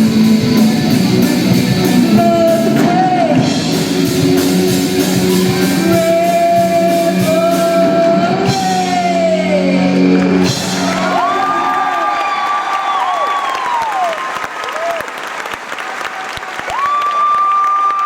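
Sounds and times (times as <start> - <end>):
live rock band playing: 0.0 - 12.4
crowd whistling and cheering: 4.3 - 6.3, 9.9 - 18.0.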